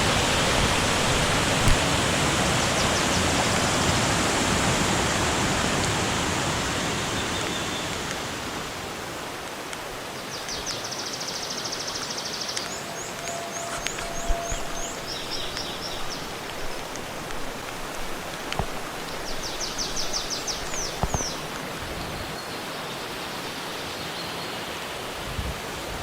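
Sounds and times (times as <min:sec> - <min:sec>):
flowing water: 0:00.0 - 0:26.0
small birds singing: 0:10.2 - 0:24.7
sharp clicks: 0:16.4 - 0:21.6.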